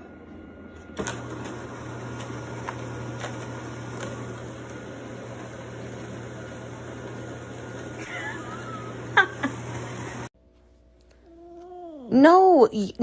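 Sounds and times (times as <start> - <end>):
household machine humming: 0.0 - 10.4.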